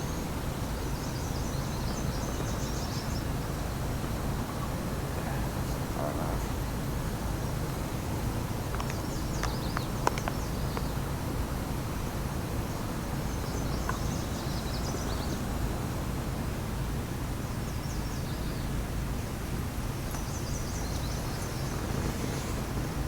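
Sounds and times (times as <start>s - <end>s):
birds chirping: 20.1s - 23.0s.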